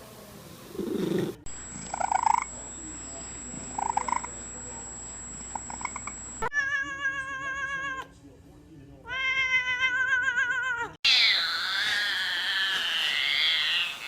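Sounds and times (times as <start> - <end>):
cat calling: 9.1 - 14.0.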